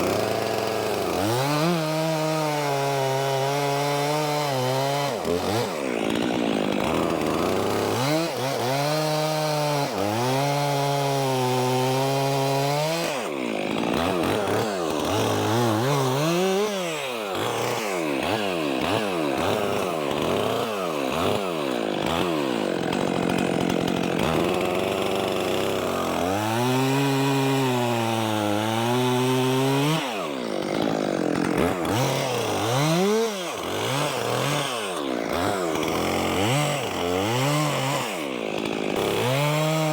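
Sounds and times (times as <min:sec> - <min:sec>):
chainsaw cutting logs: 0:00.0 - 0:39.9.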